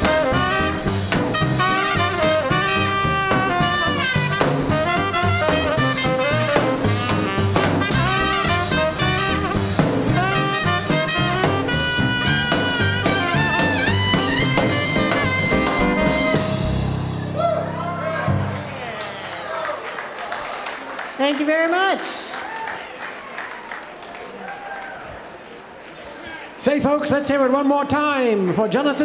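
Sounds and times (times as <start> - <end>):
saxophone: 0.0 - 17.0
trumpet: 0.0 - 17.3
swing band playing: 0.0 - 19.0.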